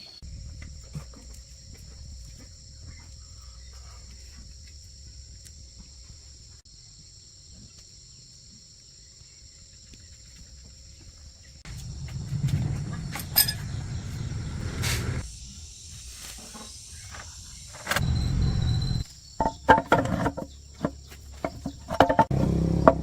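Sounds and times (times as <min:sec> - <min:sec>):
insects trilling: 0:00.0 - 0:23.0
low rumble: 0:00.2 - 0:05.4, 0:11.6 - 0:15.4
deep loud sound: 0:11.7 - 0:15.2.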